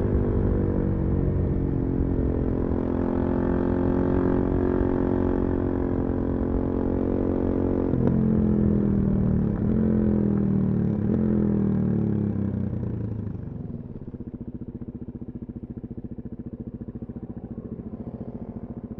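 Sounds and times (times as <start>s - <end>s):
motorcycle engine slowing to idle: 8.2s - 18.9s.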